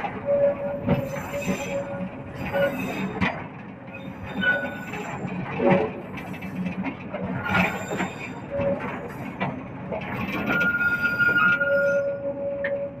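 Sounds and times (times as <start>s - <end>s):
train wheels rumbling on rails: 0.0s - 13.0s
lower wheel squeal: 0.3s - 3.2s, 4.0s - 5.2s, 10.4s - 12.9s
high wheel squeal: 2.5s - 3.1s, 4.0s - 5.2s, 10.4s - 12.6s.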